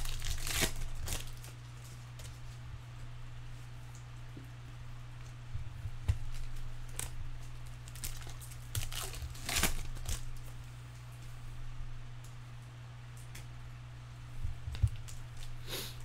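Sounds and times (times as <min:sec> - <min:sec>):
foil wrapper crinkling and tearing: 0:00.0 - 0:02.5, 0:06.1 - 0:10.4
steady low hum: 0:00.0 - 0:16.0
cards rustling: 0:06.0 - 0:10.4.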